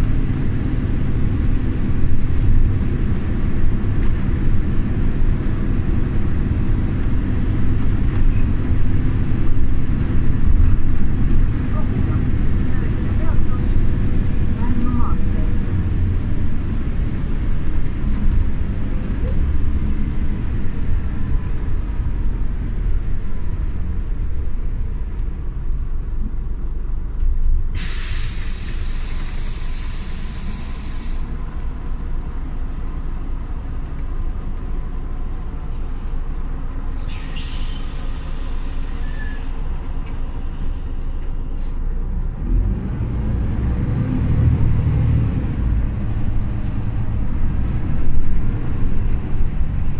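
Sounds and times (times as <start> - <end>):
bus engine rumbling: 0.0 - 49.9
compressed-air hisses: 27.8 - 31.3, 37.0 - 38.6.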